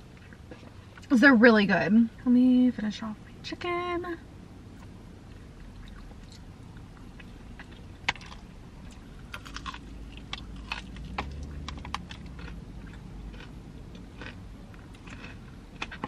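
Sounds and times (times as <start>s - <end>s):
crisp crunches of chewing: 5.3s - 16.0s.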